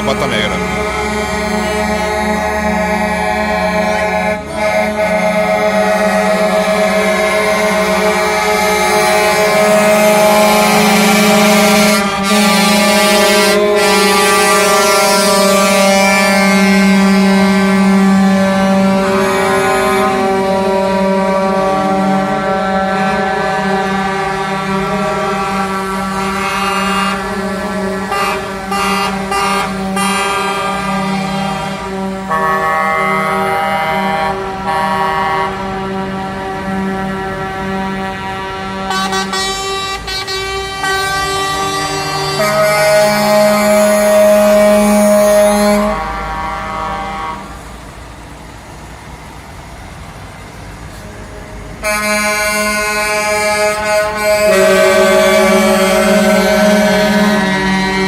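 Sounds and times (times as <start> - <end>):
truck air horn: 0.0 - 47.8, 50.7 - 58.0
low engine rumble: 43.2 - 58.0.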